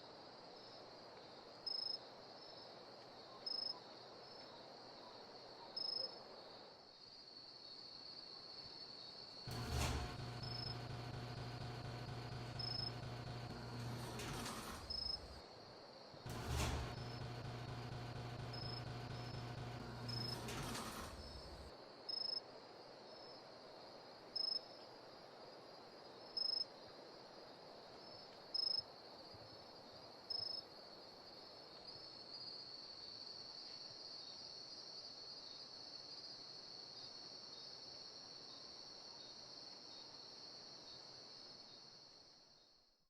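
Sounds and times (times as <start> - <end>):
faint high whine: 9.5 - 15.4, 16.3 - 21.7.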